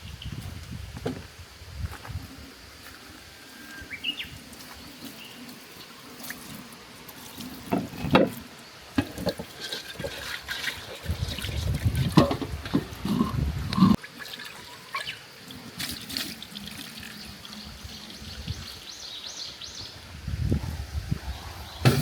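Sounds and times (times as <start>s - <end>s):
water pouring and trickling: 3.6s - 18.9s.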